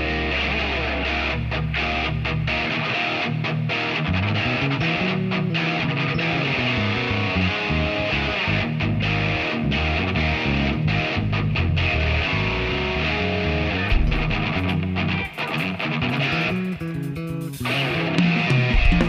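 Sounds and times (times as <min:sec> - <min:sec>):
band music with guitar: 0:00.0 - 0:19.0
bass line: 0:04.1 - 0:19.0.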